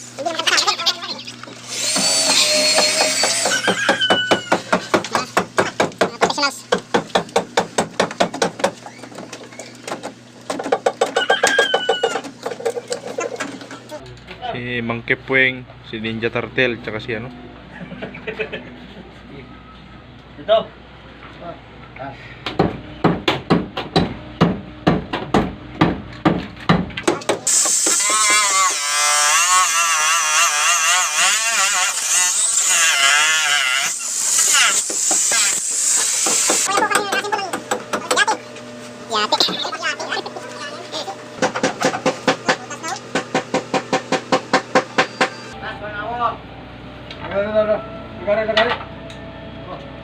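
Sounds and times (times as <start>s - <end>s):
voice with wavering pitch: 0.2s - 1.5s, 36.7s - 41.4s.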